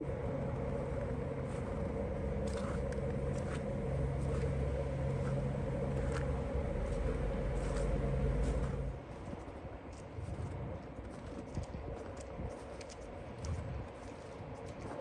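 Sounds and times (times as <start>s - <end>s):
vehicle engine droning: 0.0s - 9.6s.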